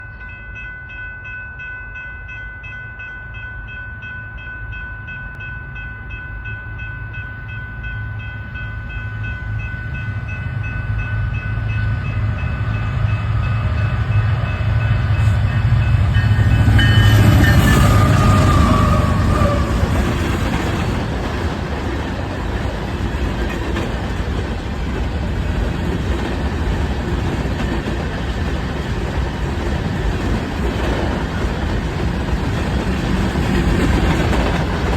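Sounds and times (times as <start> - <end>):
train horn chord: 10.2 - 20.2
train cars clattering on rails: 11.6 - 34.9.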